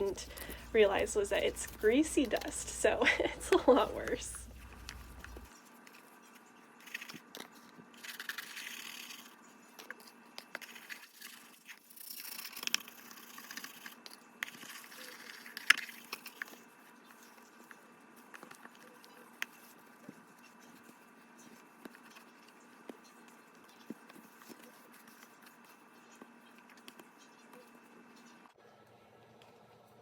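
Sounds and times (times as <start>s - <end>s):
scrubbing and scraping: 0.0s - 5.5s.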